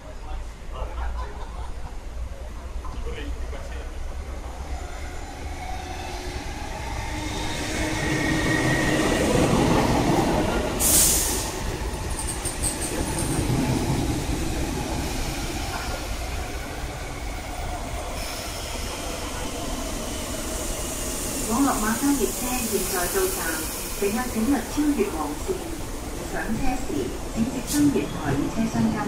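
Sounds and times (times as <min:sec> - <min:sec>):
train wheels and motors rumbling: 0:06.5 - 0:29.0.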